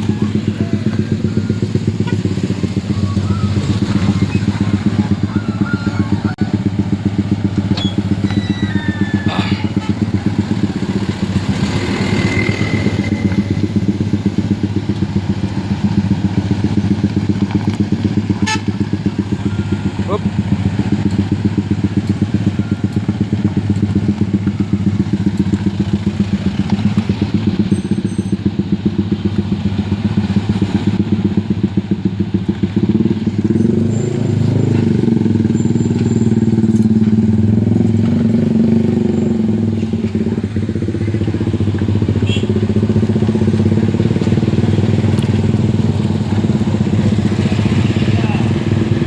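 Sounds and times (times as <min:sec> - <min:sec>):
vehicle engine revving: 0:00.0 - 0:49.0.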